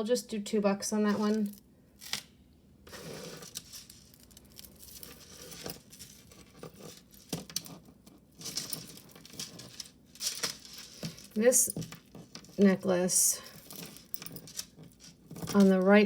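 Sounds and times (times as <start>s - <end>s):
jewelry chains clinking: 1.1s - 1.6s, 2.9s - 16.0s
rustling: 2.9s - 16.0s.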